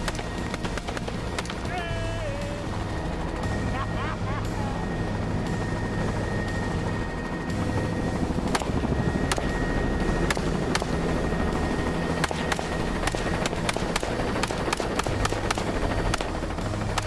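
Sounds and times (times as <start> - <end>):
rifle shots: 0.0 - 1.8, 8.4 - 11.2, 12.2 - 17.0
helicopter rotor and engine drone: 0.0 - 17.0.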